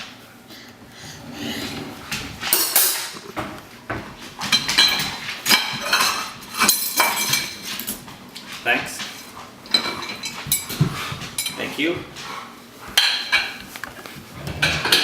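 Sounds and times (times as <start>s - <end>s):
cutlery clinking in a drawer: 4.5s - 8.0s, 9.1s - 10.7s.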